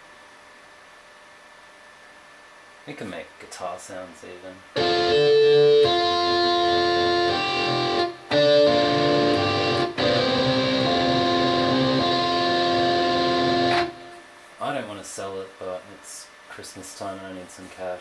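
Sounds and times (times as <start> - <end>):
synthesized guitar chords: 4.7 - 14.3.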